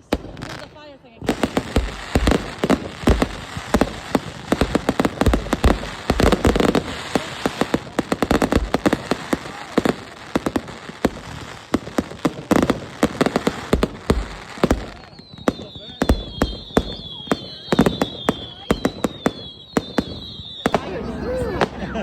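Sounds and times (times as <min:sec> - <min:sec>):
fireworks bangs and pops: 0:00.0 - 0:22.0
crackling hiss: 0:01.3 - 0:17.0.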